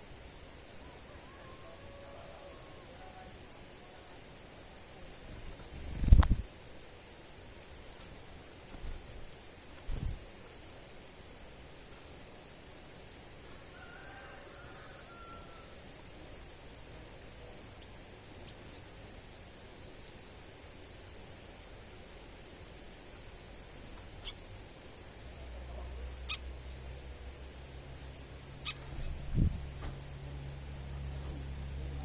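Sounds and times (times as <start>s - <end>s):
small birds chirping: 0.0s - 32.0s
steady low hum: 15.5s - 32.0s.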